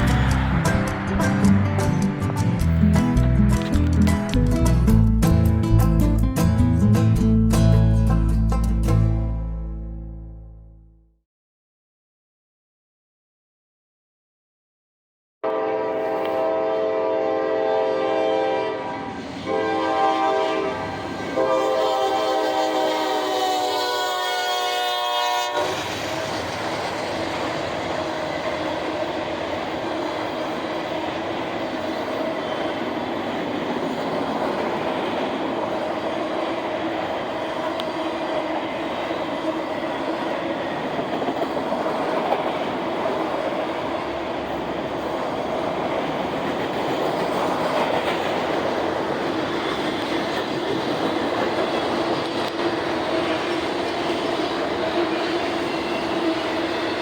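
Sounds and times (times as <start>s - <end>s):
locomotive horn chord: 0.0s - 3.6s, 15.4s - 25.8s
train rolling past: 0.0s - 9.1s, 15.6s - 57.0s.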